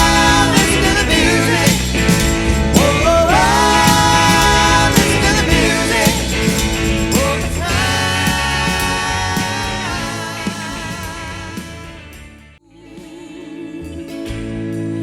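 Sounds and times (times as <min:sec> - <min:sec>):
band playing pop-rock song: 0:00.0 - 0:12.6
singer holding long notes: 0:02.8 - 0:06.5, 0:07.1 - 0:15.0.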